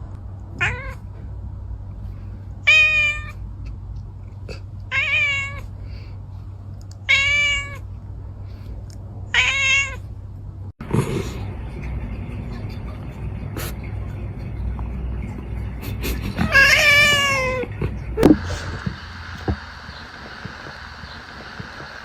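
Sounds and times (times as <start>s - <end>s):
cat meowing: 0.6s - 1.0s, 2.7s - 3.4s, 4.9s - 5.7s, 7.0s - 7.8s, 9.3s - 10.0s, 16.4s - 17.7s.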